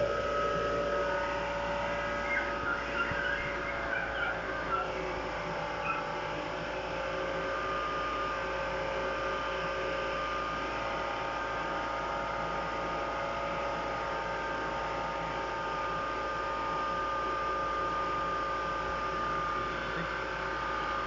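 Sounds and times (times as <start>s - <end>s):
car engine humming: 0.0s - 12.0s
compressor and fans whining: 0.0s - 21.0s.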